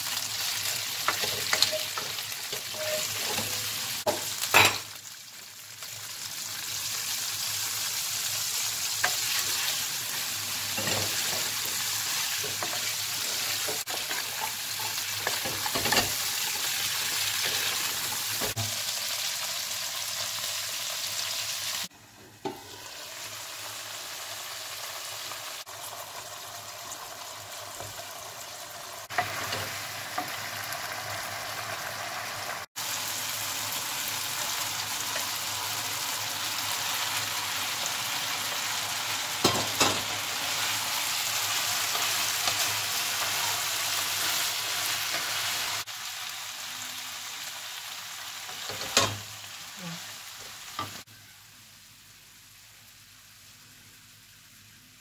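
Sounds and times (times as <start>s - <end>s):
vegetables sizzling in a frying pan: 0.0s - 55.0s.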